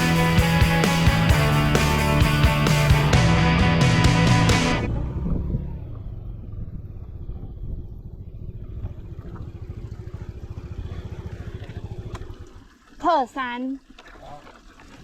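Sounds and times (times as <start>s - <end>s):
background music: 0.0s - 4.9s
motorcycle engine running: 0.0s - 12.6s.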